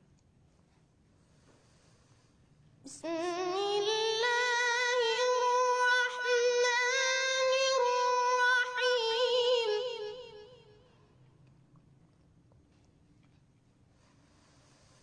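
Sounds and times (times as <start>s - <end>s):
solo voice chanting recitation: 2.9s - 11.1s.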